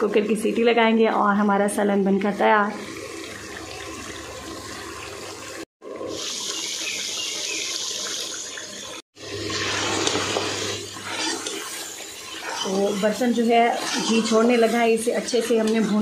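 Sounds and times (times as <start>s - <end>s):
curry sizzling and bubbling: 0.0s - 16.0s
ladle stirring: 9.3s - 16.0s.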